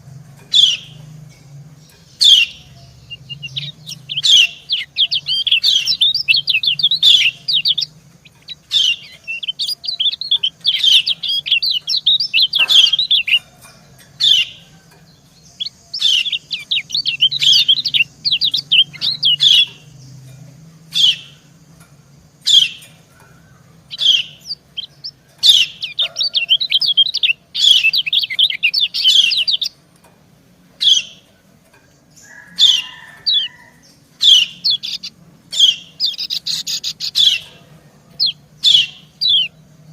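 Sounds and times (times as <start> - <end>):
sharp bird notes: 0.0 - 30.0, 30.7 - 39.9
bird chattering high chirps: 0.4 - 1.2, 1.8 - 29.8, 30.8 - 39.6.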